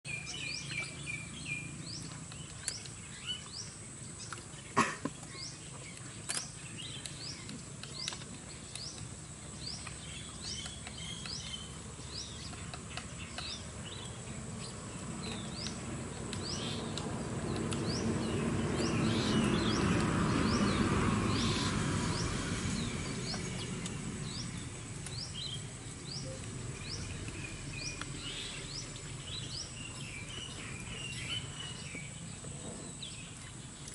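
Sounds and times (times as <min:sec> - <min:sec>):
bird high rising chirp: 0:17.8 - 0:33.8.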